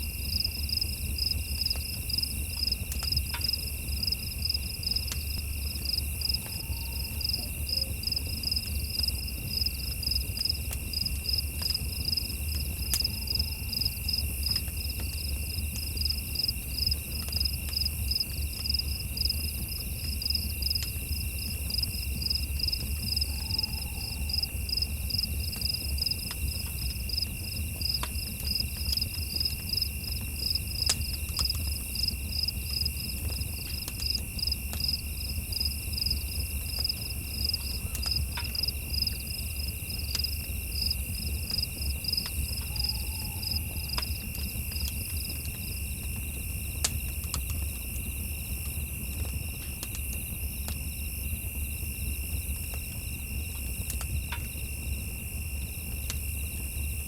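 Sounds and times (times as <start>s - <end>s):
crickets chirping: 0.0s - 57.0s
high insect trill: 12.8s - 15.0s.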